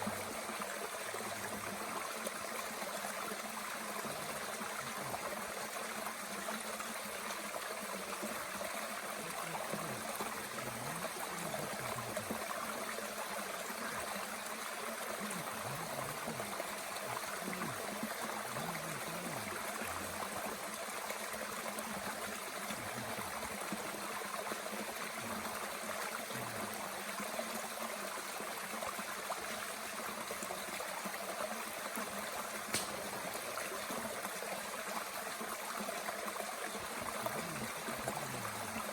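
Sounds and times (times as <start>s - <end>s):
mountain stream running: 0.0s - 38.9s
sharp crack: 32.7s - 33.1s.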